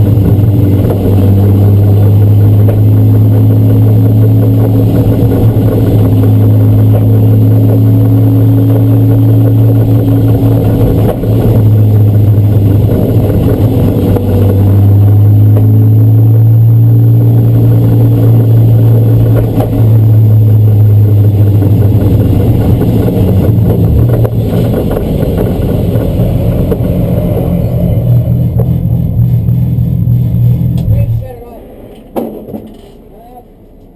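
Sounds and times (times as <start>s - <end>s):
race car engine running loud: 0.0s - 32.1s.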